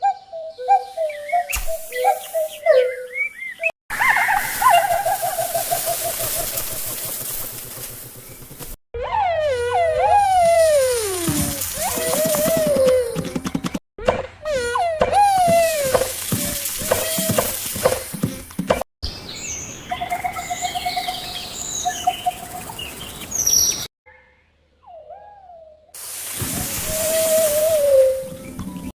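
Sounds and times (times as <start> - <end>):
swooping bird call: 0.0 - 8.4, 9.0 - 13.3, 26.5 - 28.6
bird calls and chirps: 0.0 - 8.6, 19.0 - 28.9
bird trill: 19.1 - 25.7.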